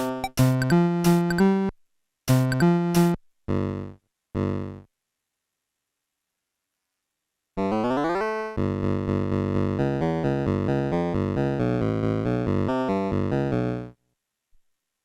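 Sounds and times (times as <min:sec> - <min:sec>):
mini keyboard synthesized notes: 0:00.0 - 0:04.9, 0:07.6 - 0:14.0.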